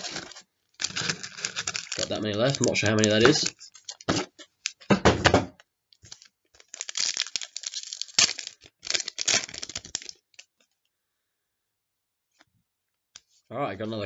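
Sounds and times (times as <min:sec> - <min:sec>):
card pack wrapper tearing and crinkling: 0:00.0 - 0:04.9, 0:06.0 - 0:10.5.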